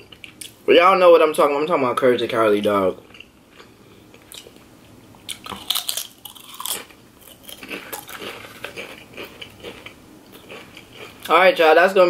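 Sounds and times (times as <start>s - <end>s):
chewing crunchy chips: 5.2s - 11.4s.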